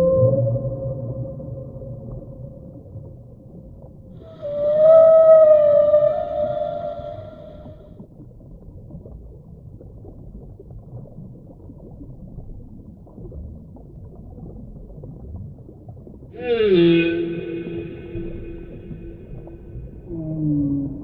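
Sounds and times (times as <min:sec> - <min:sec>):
whale calls: 0:00.0 - 0:08.0, 0:16.4 - 0:21.0
low underwater rumble and gurgle: 0:00.0 - 0:21.0.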